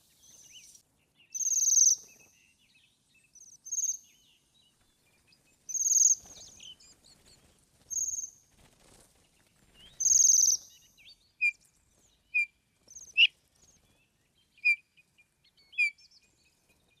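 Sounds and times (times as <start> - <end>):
short bird chirps: 0.0 - 2.6
songbirds singing buzzy trills: 0.0 - 8.4, 9.2 - 17.0.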